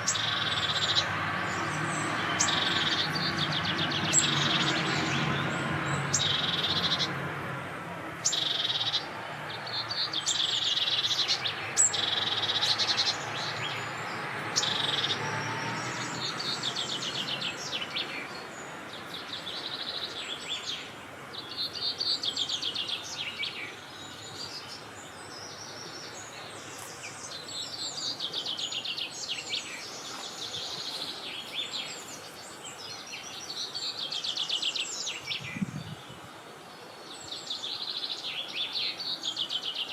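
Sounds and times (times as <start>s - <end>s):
birds chirping and trilling: 0.0s - 7.2s, 8.2s - 39.9s
low rumble of wind: 35.0s - 37.2s.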